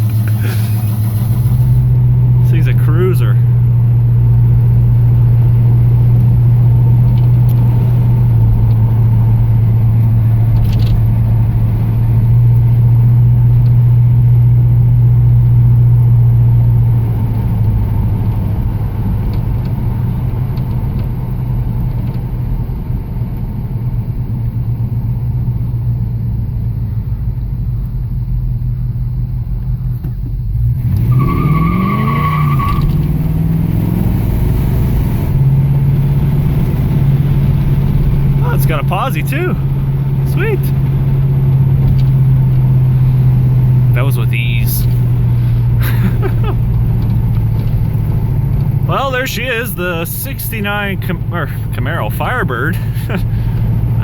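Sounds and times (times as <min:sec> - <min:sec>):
car engine revving: 0:00.0 - 0:21.8, 0:30.5 - 0:54.0
tyre squeal: 0:31.0 - 0:33.1.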